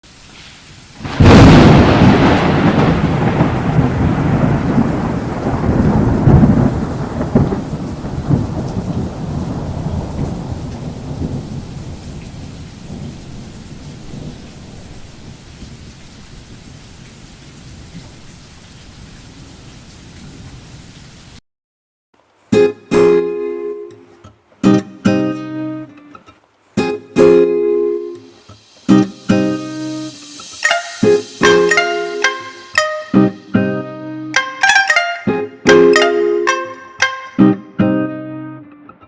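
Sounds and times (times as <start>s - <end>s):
rain hissing: 0.0s - 21.4s, 26.3s - 37.2s
thunder rumbling: 1.0s - 20.9s, 30.6s - 32.8s.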